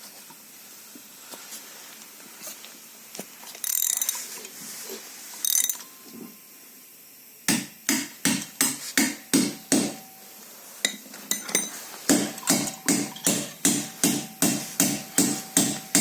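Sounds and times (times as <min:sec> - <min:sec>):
hand hammer striking metal: 0:07.5 - 0:10.2, 0:10.9 - 0:16.0.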